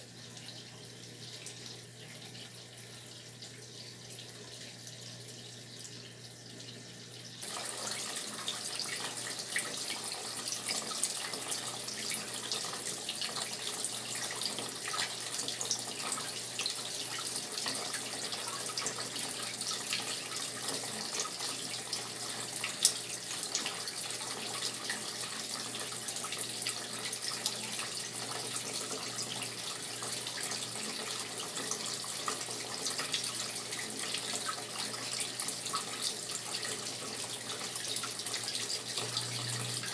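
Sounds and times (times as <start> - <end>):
water running into washing machine: 0.0 - 39.9.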